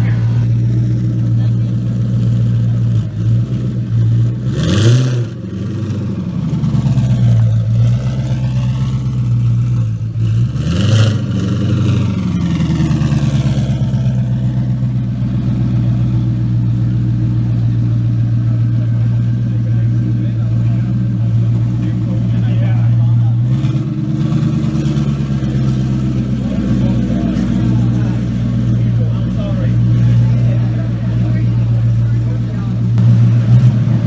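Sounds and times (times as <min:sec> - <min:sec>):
car engine idling: 0:00.0 - 0:34.0
engine revving: 0:00.0 - 0:34.0.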